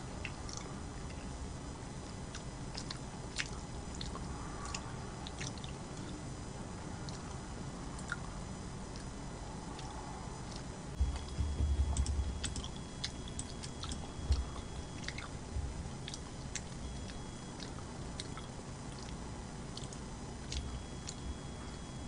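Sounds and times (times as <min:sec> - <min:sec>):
close chewing of food: 0:02.0 - 0:06.1, 0:08.9 - 0:22.0
wet mouth clicks and smacks: 0:02.3 - 0:05.8, 0:16.0 - 0:21.2.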